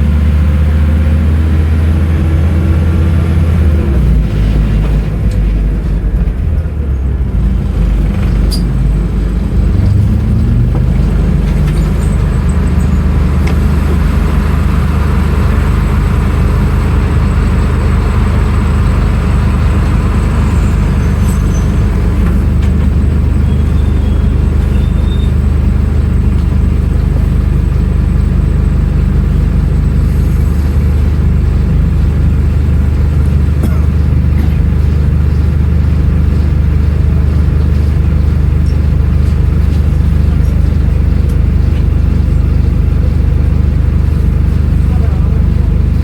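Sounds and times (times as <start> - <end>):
bus engine droning: 0.0 - 46.0.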